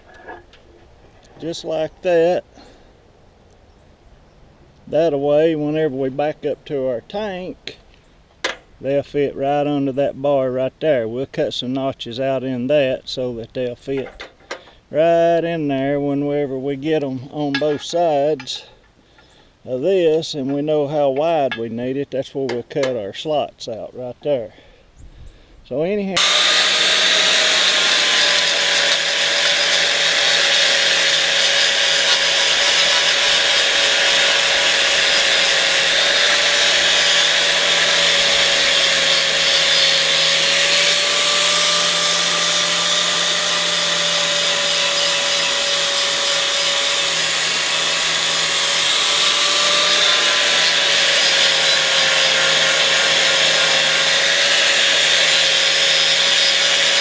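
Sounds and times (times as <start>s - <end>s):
angle grinder grinding steel: 26.2s - 57.0s.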